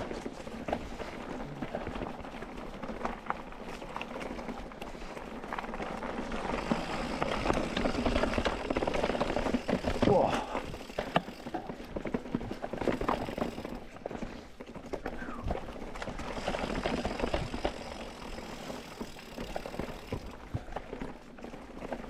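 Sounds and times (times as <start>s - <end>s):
bike rattling: 0.0s - 22.0s
bike tyres rolling on rock: 0.0s - 22.0s
bike knocking over rocks: 5.7s - 22.0s.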